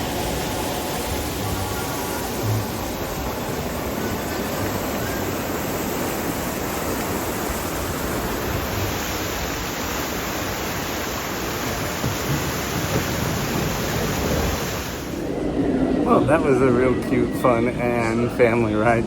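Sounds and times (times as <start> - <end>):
log flume ride rushing: 0.0 - 19.0.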